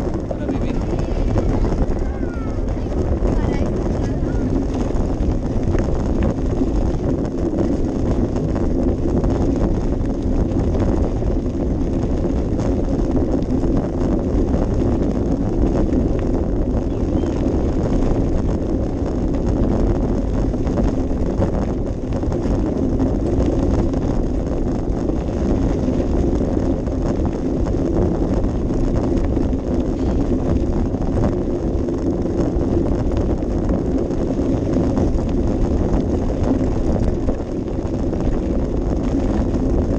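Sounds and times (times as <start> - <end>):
constant hum: 0.0 - 39.9
wind buffeting microphone: 0.0 - 39.9.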